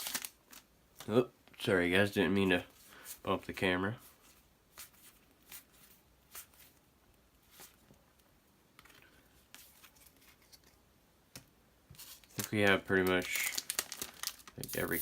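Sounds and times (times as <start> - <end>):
trading cards clicking and rustling: 13.1 - 15.0.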